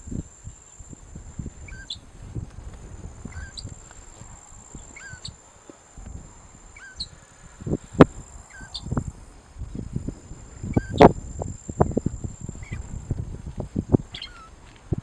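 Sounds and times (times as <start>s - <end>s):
high-pitched insect drone: 0.0s - 2.1s, 6.1s - 13.4s
shrike calling: 1.6s - 2.1s, 3.2s - 5.4s, 6.6s - 7.3s, 8.0s - 9.2s, 10.0s - 12.9s, 14.1s - 14.5s.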